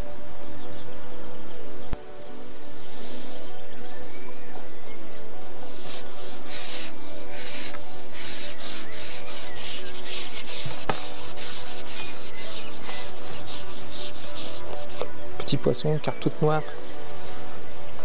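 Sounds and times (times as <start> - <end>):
fishing pole rasping through hands: 5.6 - 15.1.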